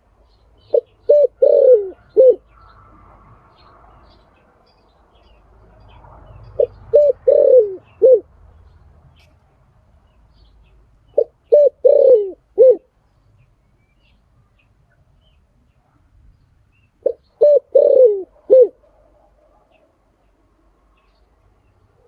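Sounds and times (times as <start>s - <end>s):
dove cooing: 0.6s - 2.4s, 6.6s - 8.3s, 11.2s - 12.9s, 17.0s - 18.9s.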